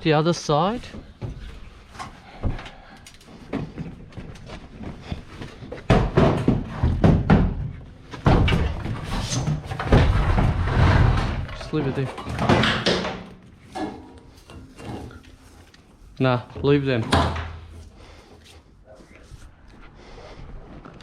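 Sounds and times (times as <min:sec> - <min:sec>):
loud thumps and clatter: 0:05.8 - 0:14.0
washing machine thuds and metal bangs: 0:05.9 - 0:14.1, 0:17.0 - 0:17.7.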